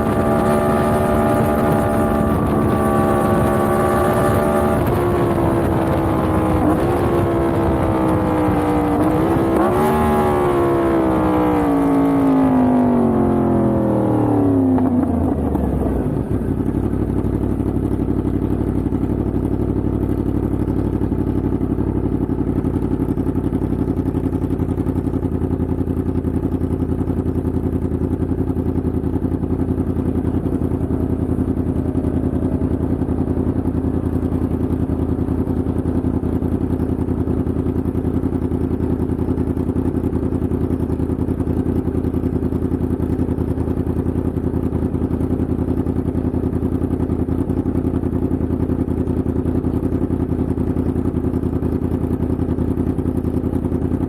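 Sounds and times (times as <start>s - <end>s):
motorcycle engine idling: 14.4s - 54.0s.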